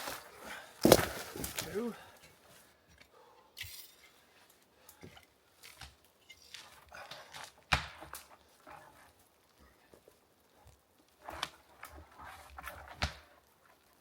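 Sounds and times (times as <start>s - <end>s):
dead wood crunching and rustling: 0.0s - 2.7s.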